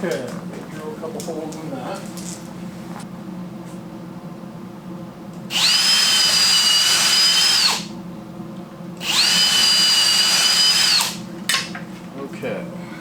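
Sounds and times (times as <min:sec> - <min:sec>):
power drill whining: 0:05.5 - 0:07.9, 0:09.0 - 0:11.2.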